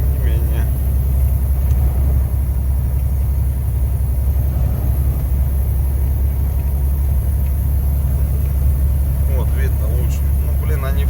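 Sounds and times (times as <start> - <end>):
diesel truck engine rumble: 0.0 - 11.0
road noise: 0.0 - 11.0.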